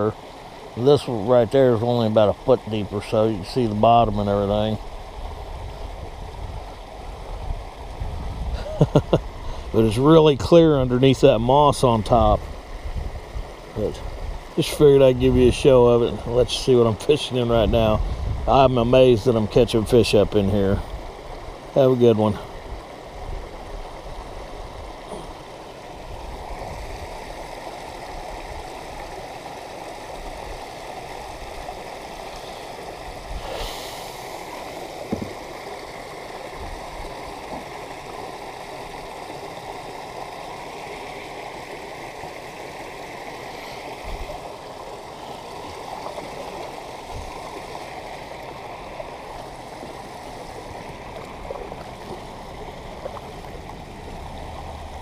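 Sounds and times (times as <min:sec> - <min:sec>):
water trickling: 0:00.0 - 0:55.0
faint knocks: 0:35.0 - 0:35.4.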